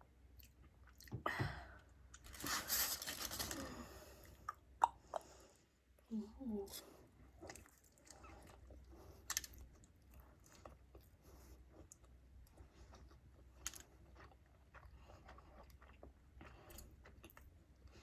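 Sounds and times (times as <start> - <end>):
person chewing food: 6.9 - 18.0.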